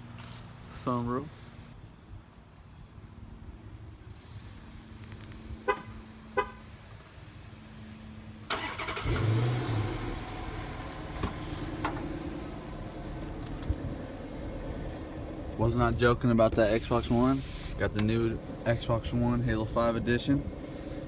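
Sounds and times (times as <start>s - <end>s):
car engine starting and idling: 8.4s - 21.0s.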